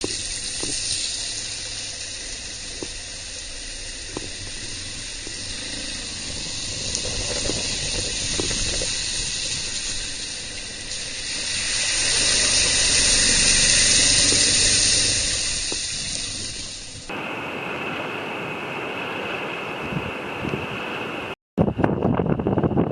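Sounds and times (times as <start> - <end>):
low rumble: 0.0 - 17.1
raindrops tapping: 0.0 - 17.1
torrential rain hissing: 0.0 - 21.4.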